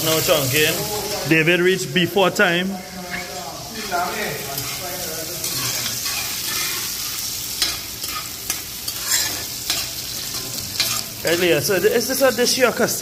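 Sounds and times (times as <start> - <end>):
vegetables sizzling in hot oil: 0.0 - 13.0
metal spoon scraping a pot: 3.1 - 11.1.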